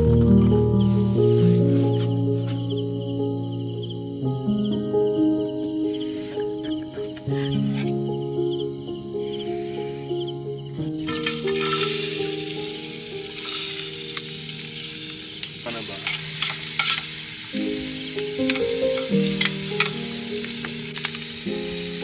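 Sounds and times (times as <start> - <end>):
background music: 0.0 - 22.0
food sizzling in a pan: 11.0 - 22.0.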